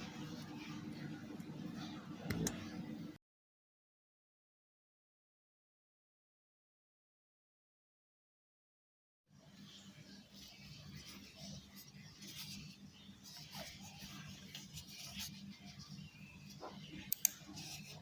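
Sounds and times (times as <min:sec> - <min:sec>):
mouse clicks: 0:02.3 - 0:02.6, 0:17.0 - 0:17.6.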